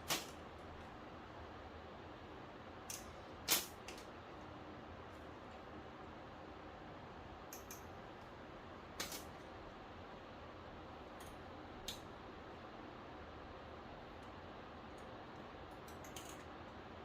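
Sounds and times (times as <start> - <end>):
steady low hiss: 0.0 - 17.0
light clicks of small parts: 2.9 - 4.1, 7.5 - 8.3, 14.2 - 16.8.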